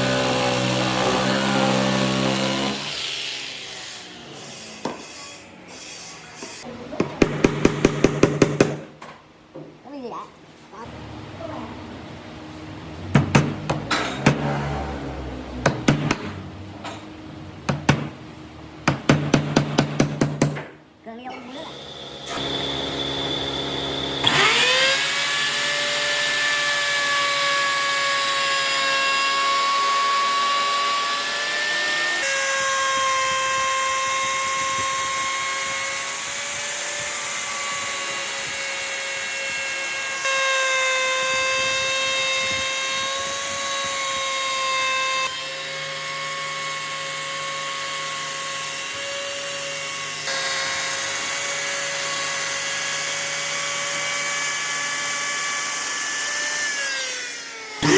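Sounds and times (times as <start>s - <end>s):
power tool motor whining: 0.0s - 6.7s, 21.4s - 57.9s.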